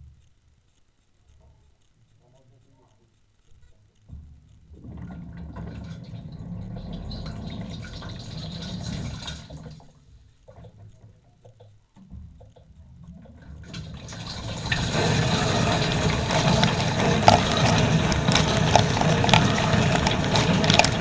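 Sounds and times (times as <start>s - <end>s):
water splashing in dishwasher: 4.8s - 9.9s, 13.6s - 21.0s
low pump hum: 12.0s - 21.0s.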